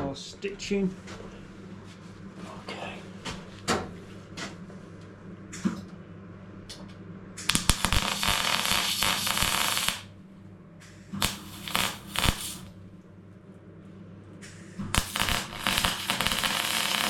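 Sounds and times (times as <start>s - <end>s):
steady low hum: 0.0s - 17.0s
welding crackle: 7.5s - 10.1s, 11.2s - 12.8s, 14.9s - 17.0s.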